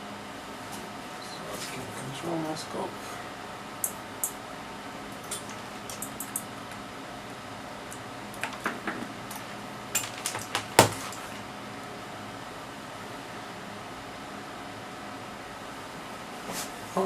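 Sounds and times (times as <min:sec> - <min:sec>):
hard objects clicking and knocking: 0:10.8 - 0:11.0.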